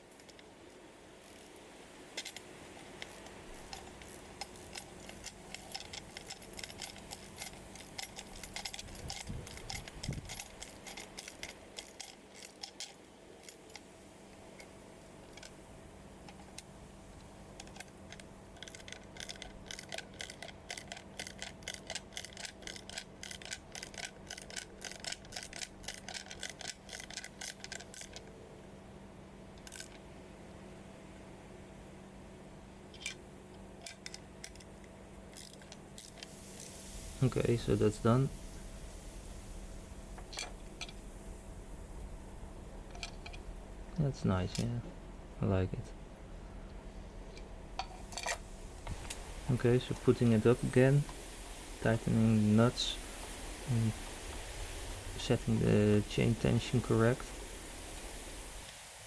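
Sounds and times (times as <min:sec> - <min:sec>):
wrench clicking on bolts: 0:00.0 - 0:13.9, 0:17.6 - 0:28.3, 0:29.6 - 0:30.0, 0:33.0 - 0:36.8.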